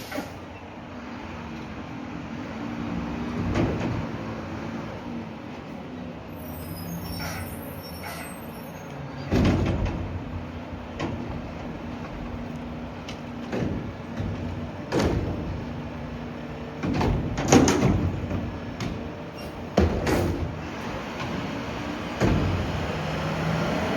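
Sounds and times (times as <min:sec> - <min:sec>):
garbage truck idling: 0:09.1 - 0:23.5
trash bins banging: 0:09.2 - 0:23.3.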